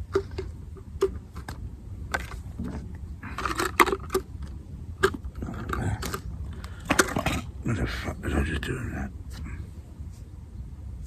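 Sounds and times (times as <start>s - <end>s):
fishing tackle clicking and clattering: 0.0s - 7.7s
low background rumble: 0.0s - 11.0s.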